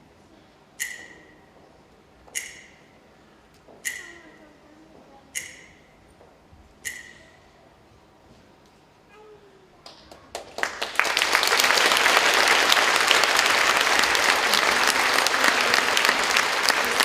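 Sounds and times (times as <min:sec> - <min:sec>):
audience applauding: 0:10.2 - 0:17.0.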